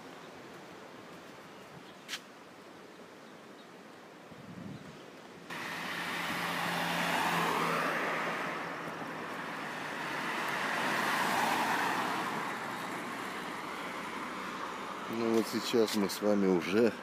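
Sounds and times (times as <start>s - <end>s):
cars passing: 5.5s - 17.0s.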